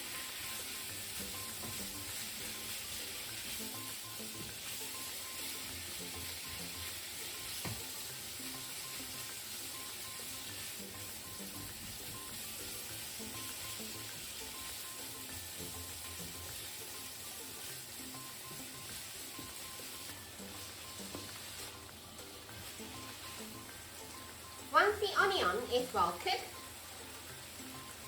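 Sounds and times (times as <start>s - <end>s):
sausages sizzling in a pan: 0.0s - 28.0s.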